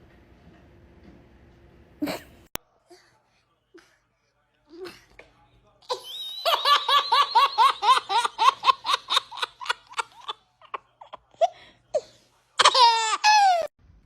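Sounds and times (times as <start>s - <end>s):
person laughing: 5.9s - 11.1s.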